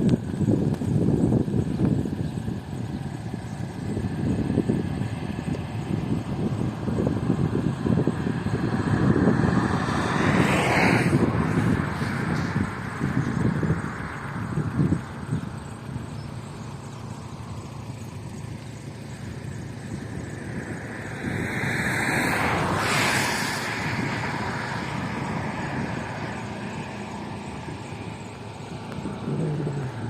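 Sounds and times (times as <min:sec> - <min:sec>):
car engine hum: 0:00.0 - 0:30.0
road and tyre noise: 0:00.0 - 0:30.0
rushing swell: 0:20.0 - 0:27.6.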